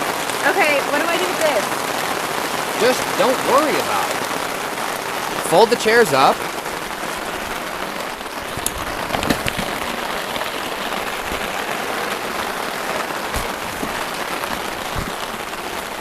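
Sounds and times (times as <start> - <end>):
heavy rain falling: 0.0 - 16.0
sharp knocks: 13.2 - 16.0.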